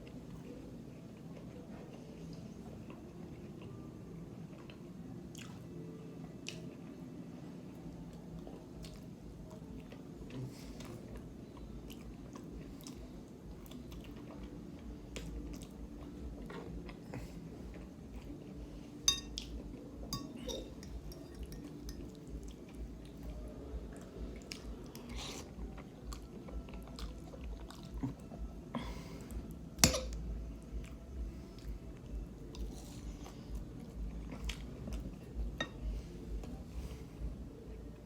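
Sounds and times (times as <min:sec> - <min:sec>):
wet chewing: 0:23.9 - 0:28.4.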